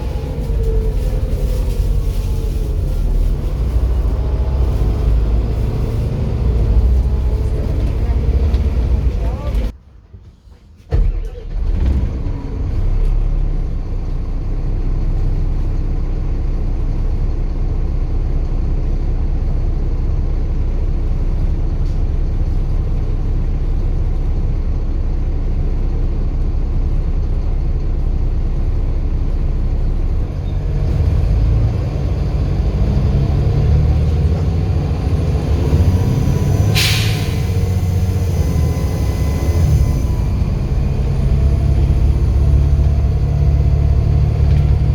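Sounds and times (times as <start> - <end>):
bus diesel engine rumbling: 0.0 - 44.9
short sharp hiss: 36.8 - 37.5.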